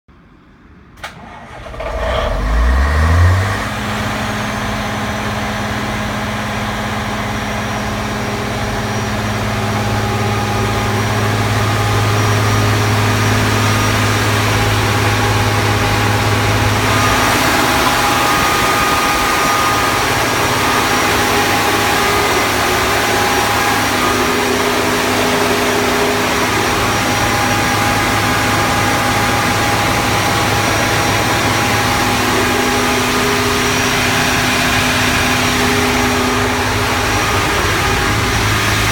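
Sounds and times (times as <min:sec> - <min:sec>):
engine cranking: 0:01.0 - 0:05.0
diesel generator engine running: 0:01.0 - 0:38.9.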